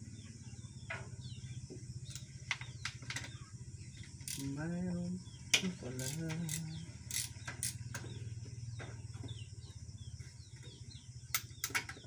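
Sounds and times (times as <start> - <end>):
small birds chirping: 0.0 - 12.0
steady low hum: 0.0 - 12.0
hand tools clicking on metal: 4.2 - 4.6, 5.6 - 8.0.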